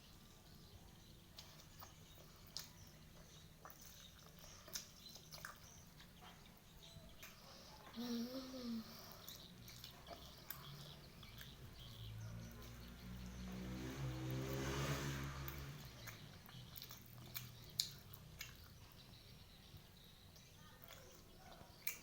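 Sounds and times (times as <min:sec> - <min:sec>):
vehicle engine passing: 0:10.3 - 0:18.4.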